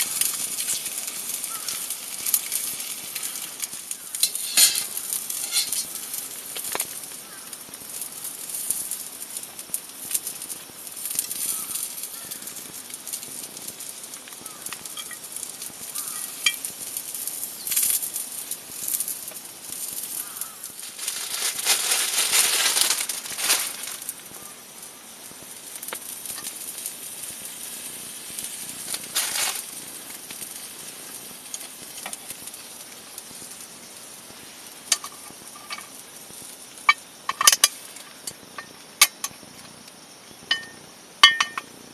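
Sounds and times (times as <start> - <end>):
food sizzling and crackling: 0.0 - 41.9.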